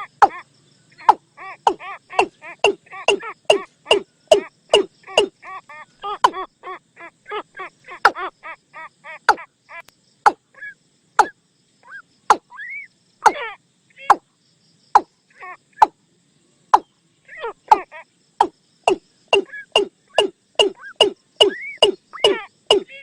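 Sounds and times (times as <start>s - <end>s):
watercock calling: 1.0s - 6.5s, 10.3s - 11.3s, 16.8s - 23.0s.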